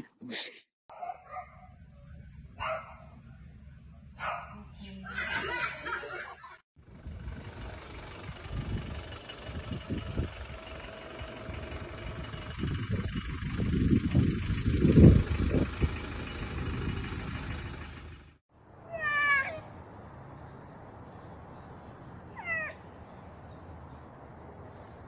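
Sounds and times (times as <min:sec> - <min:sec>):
low rumbling noise: 0:06.8 - 0:18.8
cat meowing: 0:18.9 - 0:19.7, 0:22.4 - 0:22.8.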